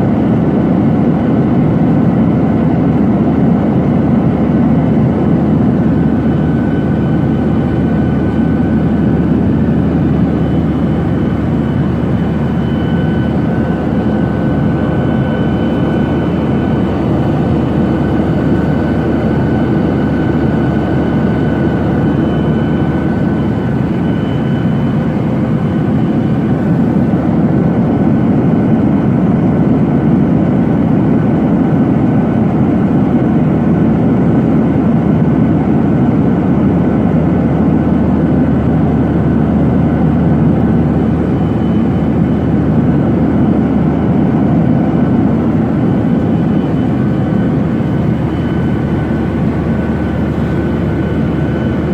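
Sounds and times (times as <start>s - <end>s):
airliner cabin rumble: 0.1s - 30.0s, 33.4s - 51.9s
faint high whine: 4.4s - 27.4s, 37.8s - 51.9s.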